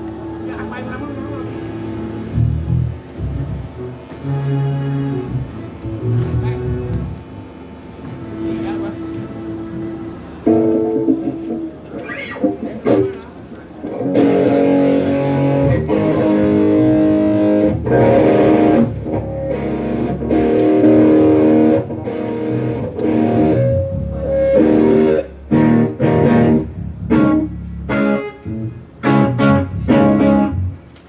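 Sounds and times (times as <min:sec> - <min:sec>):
guitar strumming chords: 0:10.4 - 0:30.9.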